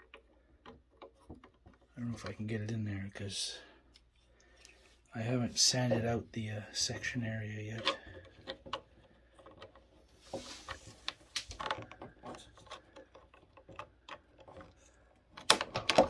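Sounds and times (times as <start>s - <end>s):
plastic parts clicking: 11.0s - 16.0s.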